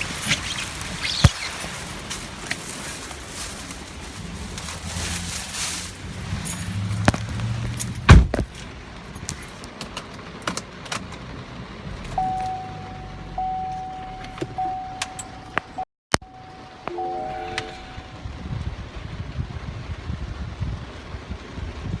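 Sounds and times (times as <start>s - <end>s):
keys jangling: 6.3s - 7.1s
loud thump: 8.1s - 8.5s
high electronic tone: 12.2s - 18.5s.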